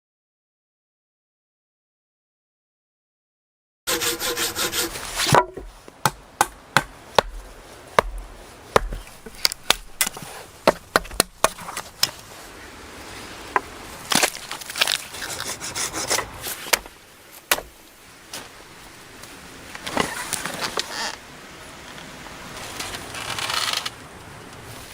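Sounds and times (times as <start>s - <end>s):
hand saw sawing wood: 3.9s - 12.0s, 15.1s - 17.7s
knocks and cracks of wood: 5.2s - 12.2s, 13.6s - 15.2s, 16.6s - 17.9s.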